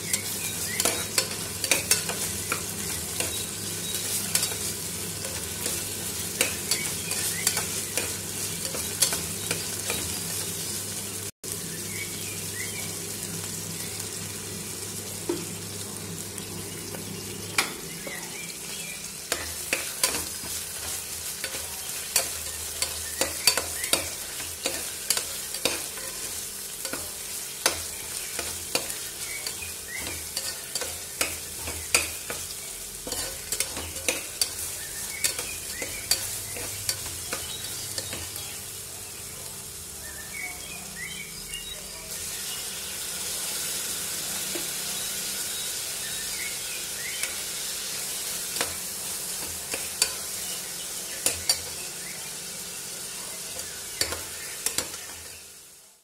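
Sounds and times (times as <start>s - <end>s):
onions sizzling in hot oil: 0.0s - 56.0s
steel ladle clinking and scraping: 33.0s - 34.6s.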